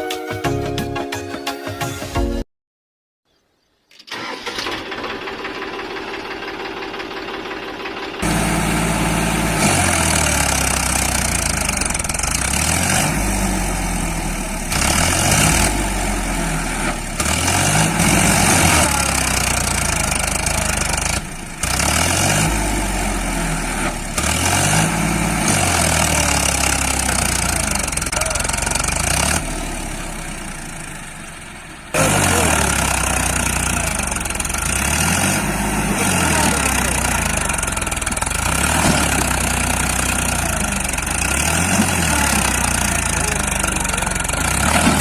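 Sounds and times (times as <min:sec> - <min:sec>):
engine revving: 0:08.2 - 0:45.0.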